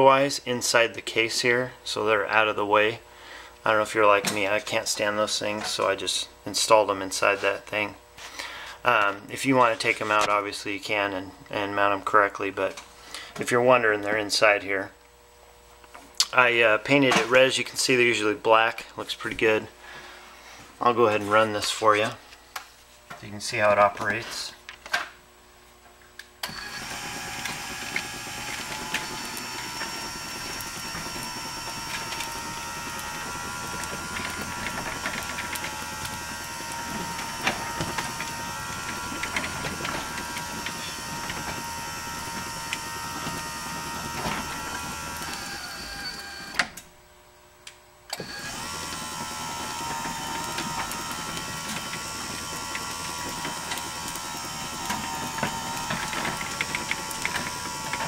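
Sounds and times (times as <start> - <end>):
garage door opener motor whine: 26.2 - 58.0.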